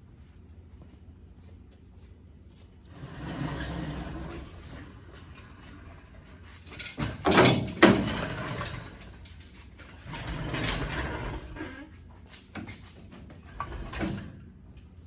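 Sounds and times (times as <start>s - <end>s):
dull scraping noise: 2.9s - 6.2s
scraping clatter: 2.9s - 11.9s.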